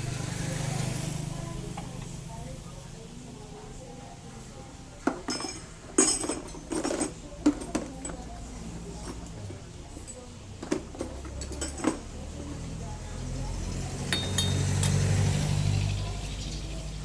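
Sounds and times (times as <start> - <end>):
metal hand tools clinking: 5.3 - 8.3, 14.1 - 15.1.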